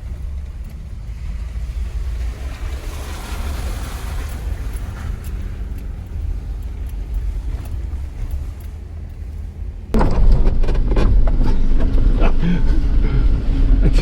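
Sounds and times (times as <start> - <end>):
vehicle engine and tyres rumbling: 0.0 - 14.0
knocks and rattles: 9.9 - 13.0.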